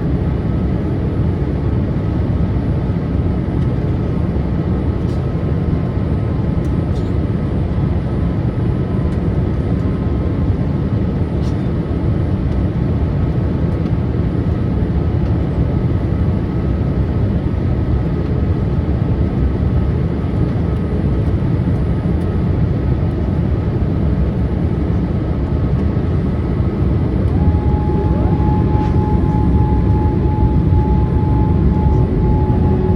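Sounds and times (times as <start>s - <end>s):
airliner cabin engine rumble: 0.0s - 32.9s
steady whine: 25.1s - 32.9s.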